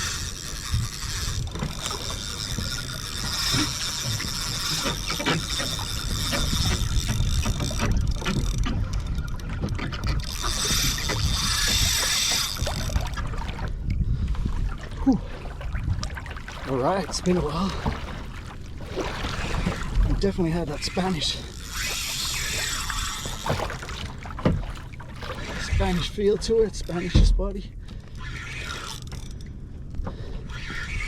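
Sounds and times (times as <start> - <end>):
fishing reel whirring: 0.0 - 13.9, 19.2 - 27.2, 28.0 - 29.6, 30.3 - 31.0
low rumble of wind and water: 0.0 - 31.0.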